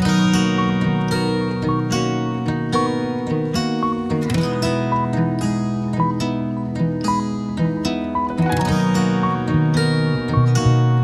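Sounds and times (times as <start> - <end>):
acoustic guitar melody: 0.0 - 11.0.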